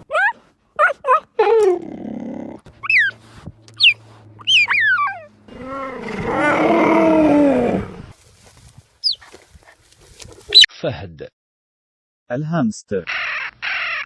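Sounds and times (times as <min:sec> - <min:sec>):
cheetah chirping calls: 0:02.8 - 0:03.2, 0:03.8 - 0:05.3, 0:09.0 - 0:09.3.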